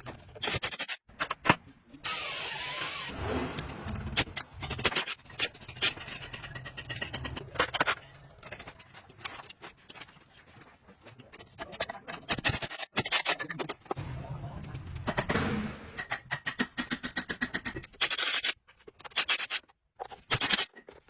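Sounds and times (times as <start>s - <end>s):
metal tools scraping and clinking: 3.6s - 14.0s.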